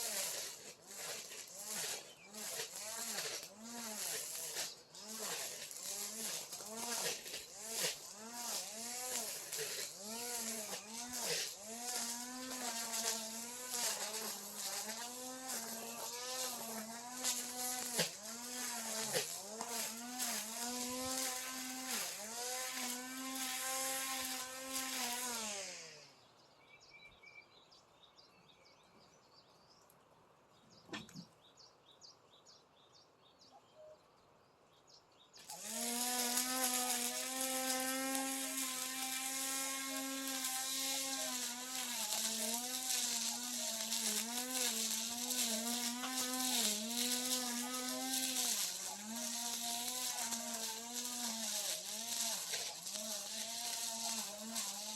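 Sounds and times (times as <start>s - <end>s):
brush cutter engine running: 0.0s - 26.2s, 35.4s - 54.9s
faint bird chirping: 26.2s - 35.4s.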